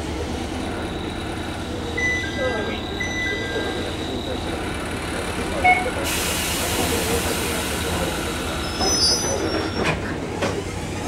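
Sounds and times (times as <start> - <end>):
high wheel squeals: 0.6 - 6.0, 8.3 - 11.0.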